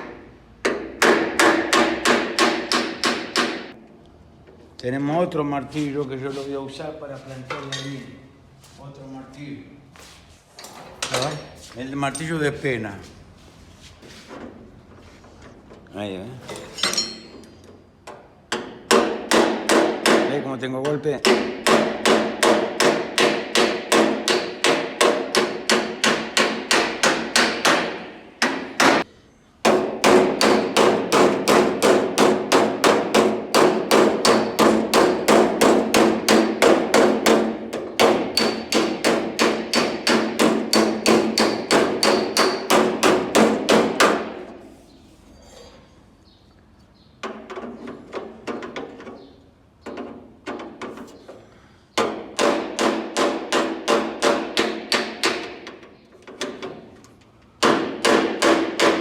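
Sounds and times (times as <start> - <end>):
hammer striking steel door: 0.0 - 3.8, 21.2 - 44.4, 52.0 - 55.7, 57.6 - 59.0.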